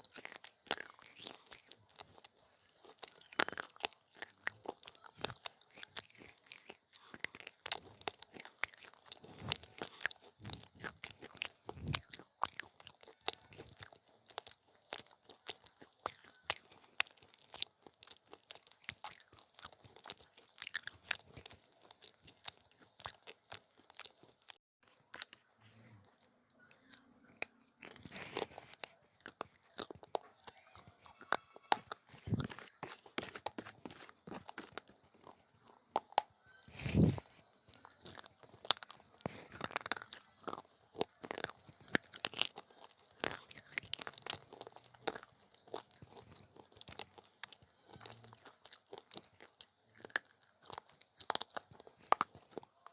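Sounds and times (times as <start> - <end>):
person chewing crunchy clay: 0.0 - 52.9.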